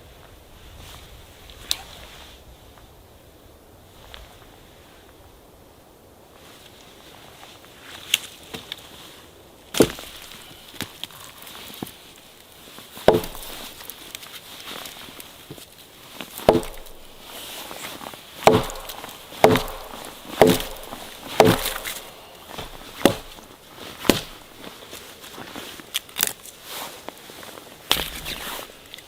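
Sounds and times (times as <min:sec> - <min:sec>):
axe chopping wood: 0:09.8 - 0:10.2, 0:13.0 - 0:13.9, 0:16.4 - 0:17.8, 0:18.4 - 0:24.5, 0:27.9 - 0:28.4.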